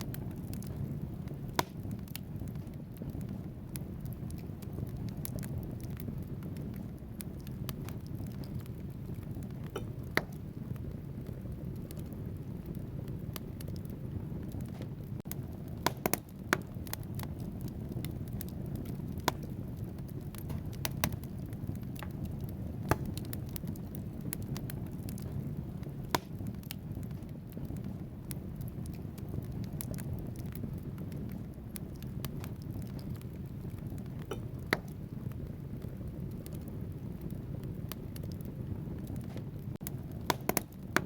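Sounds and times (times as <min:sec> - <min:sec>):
logs crackling and popping: 0:00.0 - 0:41.0
low rumble of flames: 0:00.0 - 0:41.0.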